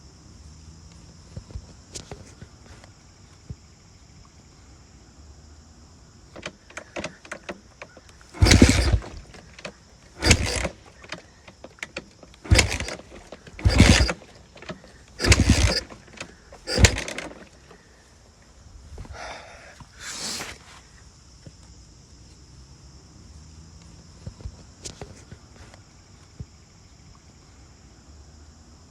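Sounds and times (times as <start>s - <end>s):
dirt bike being kick-started: 1.5s - 2.9s, 6.3s - 17.8s.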